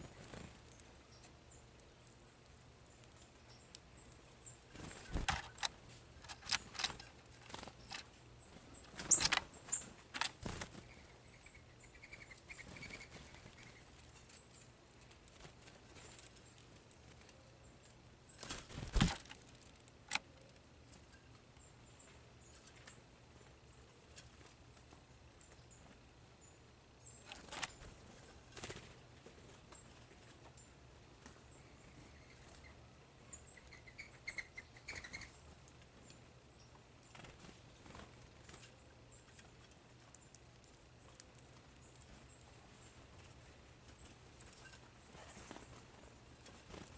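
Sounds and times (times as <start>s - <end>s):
birds tapping at seed feeder: 0.0s - 23.0s, 33.4s - 46.9s
faint high bird chirp: 6.4s - 14.7s, 31.4s - 36.8s.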